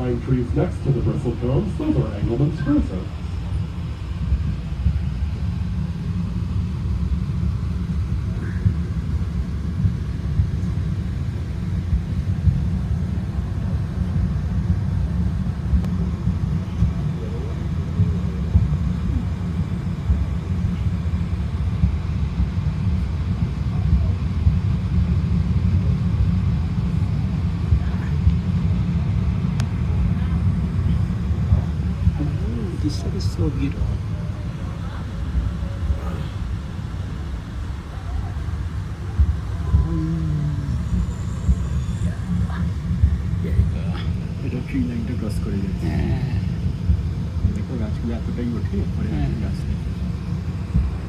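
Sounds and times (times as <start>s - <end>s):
train low rumble: 0.0s - 51.0s.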